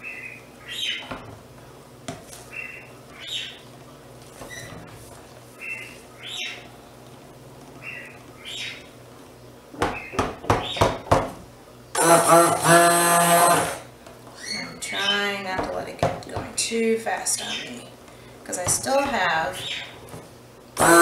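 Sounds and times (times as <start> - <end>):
bird calling: 7.8 - 8.9, 14.4 - 15.3
loud sharp knocks: 9.8 - 11.4.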